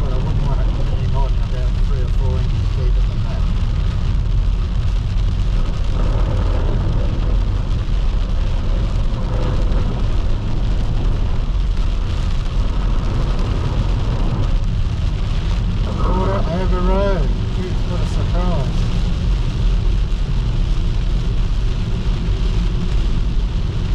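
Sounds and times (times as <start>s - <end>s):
car road and engine rumble: 0.0s - 23.9s
rain hitting car: 0.0s - 23.9s.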